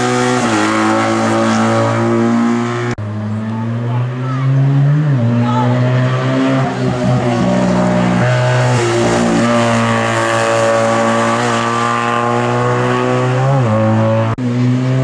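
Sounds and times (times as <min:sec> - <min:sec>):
race car engine at high revs: 0:00.0 - 0:15.0.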